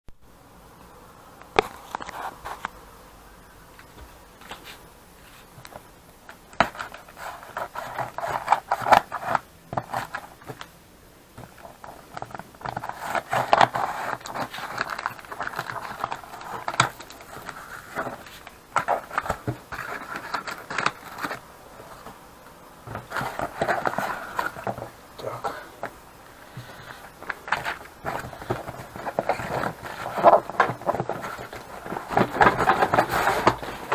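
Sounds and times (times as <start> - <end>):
scraping and rattling: 22.8 - 33.9.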